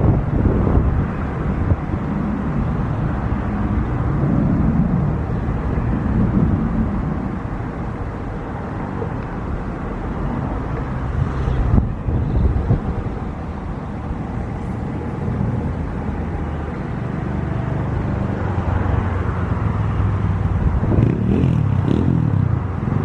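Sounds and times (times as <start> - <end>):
jet engines rumbling: 0.0 - 23.0
wind buffeting microphone: 0.0 - 23.0.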